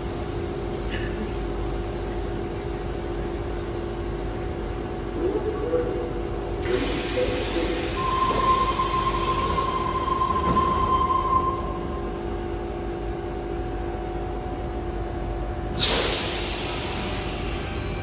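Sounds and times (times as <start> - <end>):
electric train hum: 0.0 - 18.0
high even whine: 5.0 - 12.9
air hiss burst: 15.8 - 17.4.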